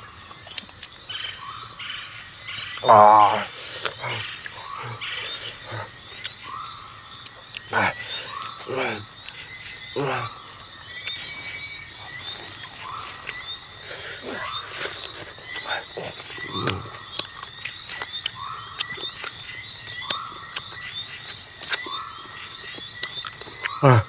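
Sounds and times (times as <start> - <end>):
repeating animal call: 2.7 - 9.2, 13.9 - 17.2, 23.6 - 24.0.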